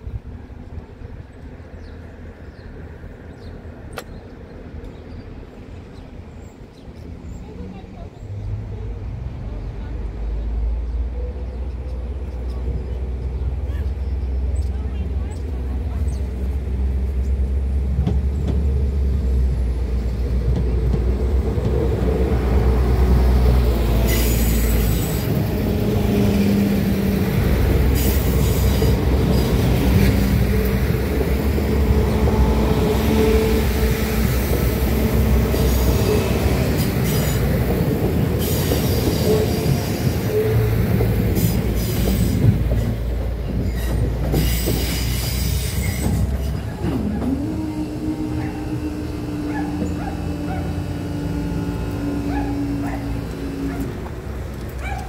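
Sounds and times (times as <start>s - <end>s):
train engine rumble: 0.0s - 55.0s
wheels clacking over rail joints: 17.8s - 55.0s.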